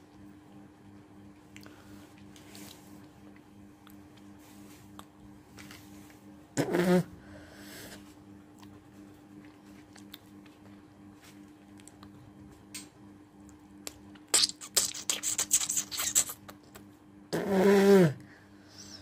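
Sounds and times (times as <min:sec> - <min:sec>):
low electrical hum: 0:00.0 - 0:19.0
woman hawking and spitting: 0:06.6 - 0:07.1, 0:14.2 - 0:18.0.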